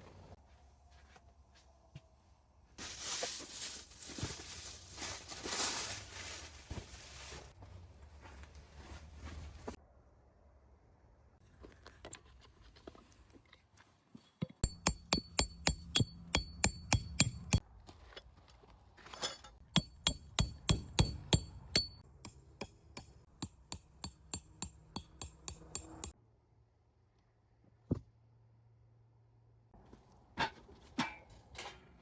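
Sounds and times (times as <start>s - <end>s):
metallic ringing strikes: 14.6s - 17.6s, 19.2s - 26.1s.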